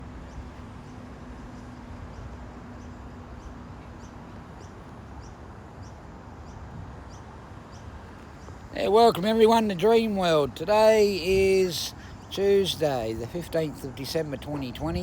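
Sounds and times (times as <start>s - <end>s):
outdoor background rumble: 0.0s - 15.0s.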